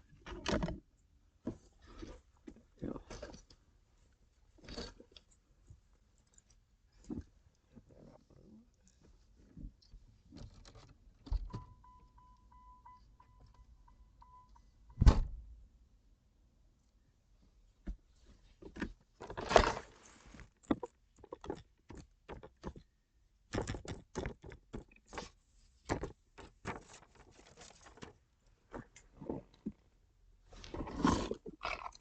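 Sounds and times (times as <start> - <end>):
loud thump: 15.0 - 15.5
rustling handling noises: 17.9 - 20.9, 25.0 - 29.8
knocks and clicks: 23.5 - 25.0.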